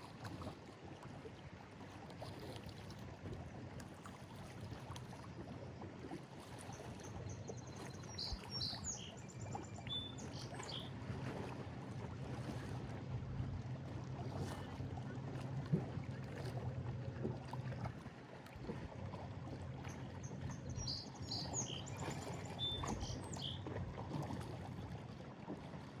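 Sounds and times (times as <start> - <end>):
bird singing: 7.4 - 10.9, 20.6 - 23.6.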